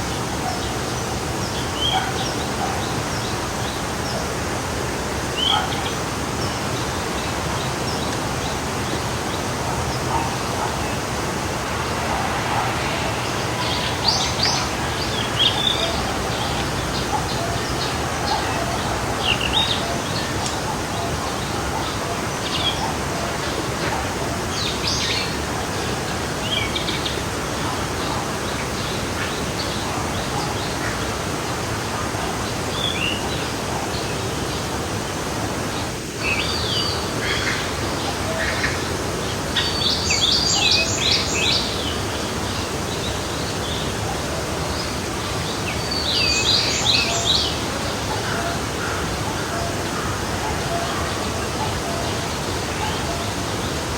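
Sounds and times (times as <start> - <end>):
forest stream rushing: 0.0 - 53.9
birds chirping: 7.9 - 23.0.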